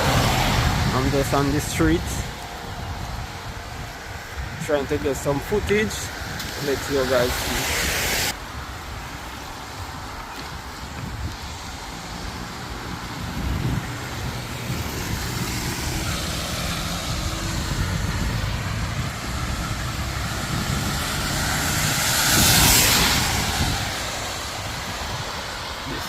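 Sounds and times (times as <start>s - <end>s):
traffic engines rumbling: 0.0s - 26.0s
tyres hissing on wet road: 0.0s - 26.0s.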